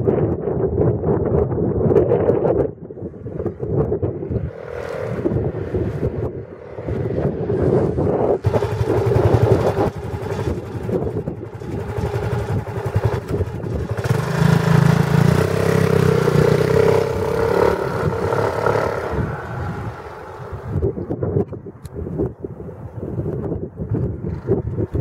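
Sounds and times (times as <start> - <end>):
scooter engine revving: 4.4 - 20.8.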